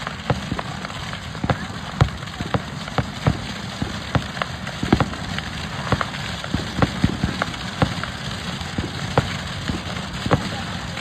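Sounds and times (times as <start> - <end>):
bonfire crackling and popping: 0.0 - 11.0.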